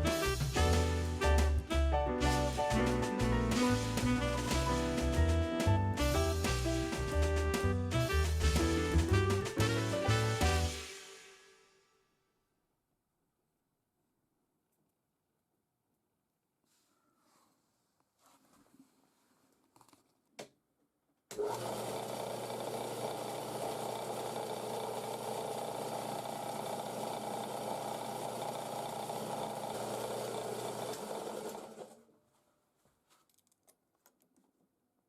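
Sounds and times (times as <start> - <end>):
band saw humming: 2.4 - 11.0
band saw spinning down: 21.4 - 31.9.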